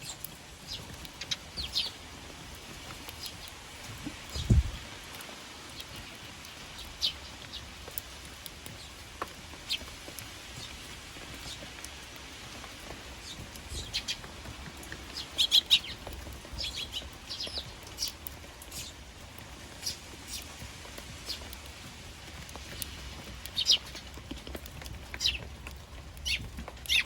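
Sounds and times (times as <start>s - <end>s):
sparrows chirping: 0.0s - 4.9s, 5.6s - 21.8s, 22.5s - 27.0s
rain hissing: 0.0s - 7.8s.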